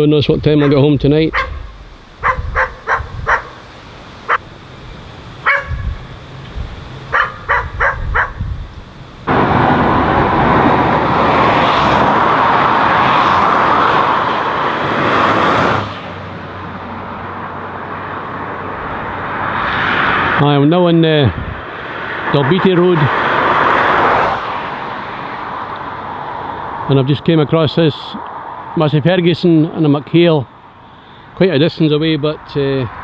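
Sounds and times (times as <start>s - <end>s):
steady rush of noise: 0.0s - 23.0s
dog barking: 0.6s - 3.7s, 5.4s - 6.0s, 7.1s - 8.5s.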